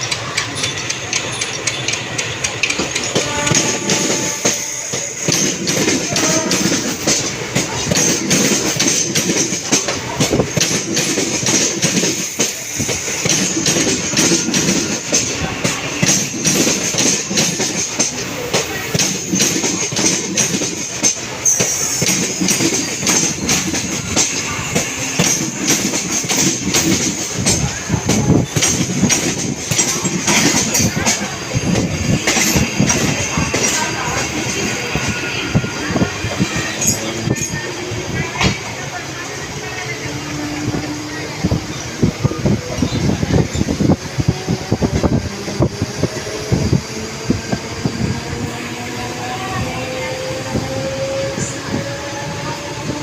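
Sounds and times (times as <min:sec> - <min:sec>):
train wheels clattering over rail joints: 0:00.0 - 0:39.0.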